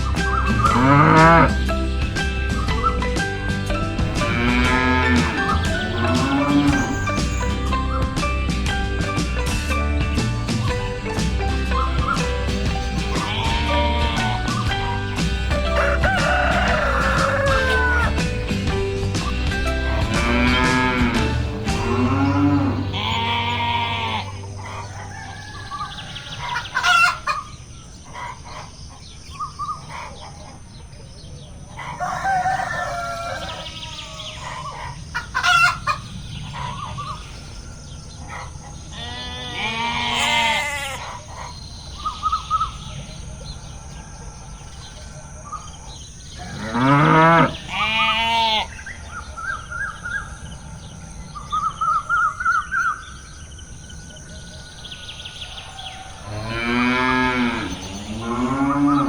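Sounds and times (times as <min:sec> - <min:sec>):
poultry clucking and chirping: 0:00.0 - 0:59.0
rooster crowing: 0:13.1 - 0:18.3, 0:20.2 - 0:27.4, 0:31.8 - 0:34.6, 0:45.9 - 0:48.8, 0:54.6 - 0:59.0.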